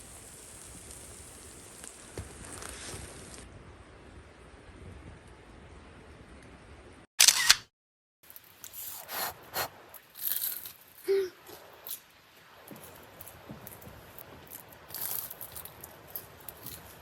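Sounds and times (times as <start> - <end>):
camera shutter click: 7.2 - 7.7
handling clicks and rustles: 8.3 - 17.0.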